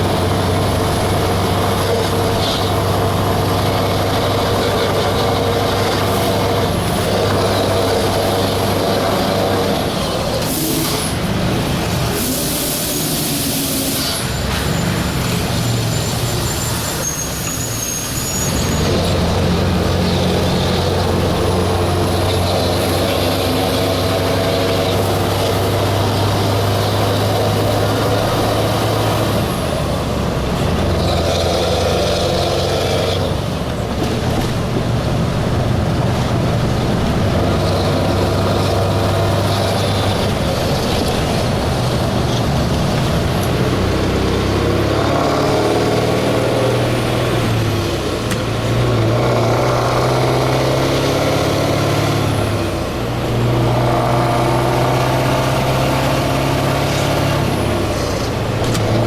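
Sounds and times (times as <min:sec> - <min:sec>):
truck engine running: 0:00.0 - 0:59.0
air hiss: 0:10.4 - 0:11.3, 0:12.1 - 0:14.6.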